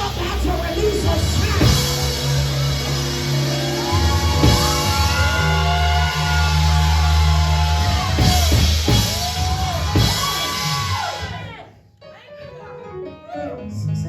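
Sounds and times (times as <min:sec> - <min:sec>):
deep steady bass: 0:00.0 - 0:11.6
drums: 0:00.0 - 0:11.7
sliding high notes: 0:01.6 - 0:11.4.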